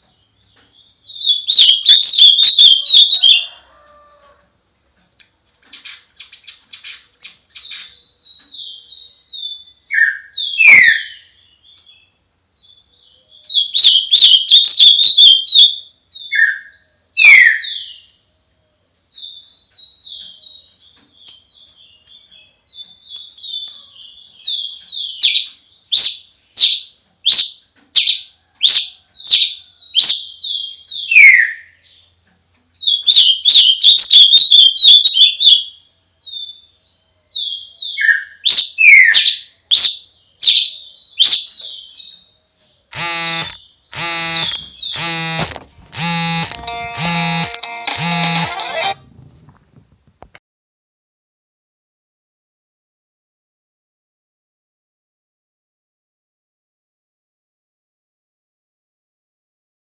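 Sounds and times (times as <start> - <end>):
songbird chirping and trilling: 0.0 - 49.0.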